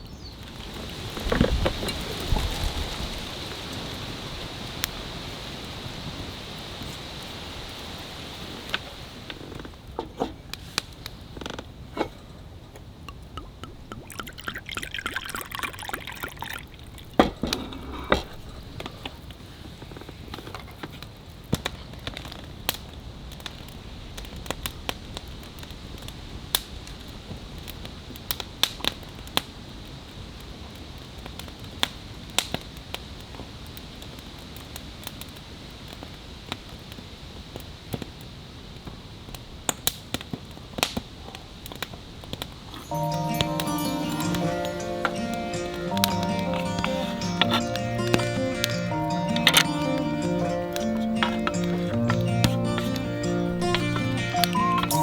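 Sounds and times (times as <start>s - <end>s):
campfire crackling: 0.4s - 11.8s, 13.1s - 20.2s, 41.7s - 55.0s.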